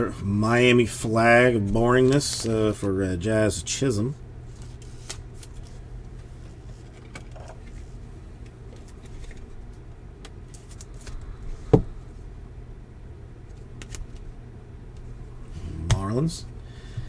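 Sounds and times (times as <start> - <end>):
cards flipping and rustling: 2.0 - 2.8, 8.7 - 11.2.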